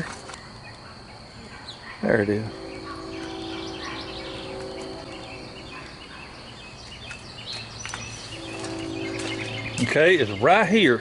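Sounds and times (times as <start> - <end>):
outdoor background noise: 0.0 - 11.0
small birds chirping: 0.4 - 10.8
steady low hum: 2.0 - 11.0.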